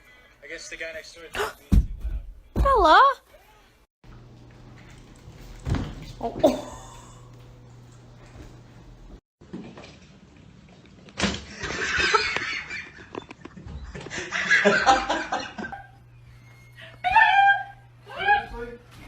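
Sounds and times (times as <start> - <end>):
people laughing: 13.9 - 16.0.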